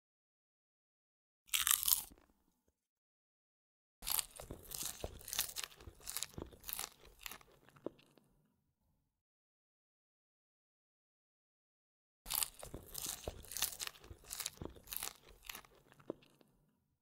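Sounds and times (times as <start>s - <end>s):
crunching fried food: 1.5s - 2.4s, 4.0s - 8.4s, 12.3s - 16.7s.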